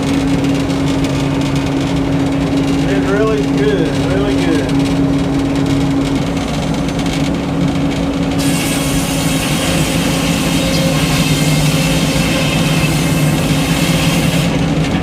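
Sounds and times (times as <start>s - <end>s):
sawmill engine droning: 0.0s - 15.0s
circular saw blade cutting log: 8.4s - 15.0s.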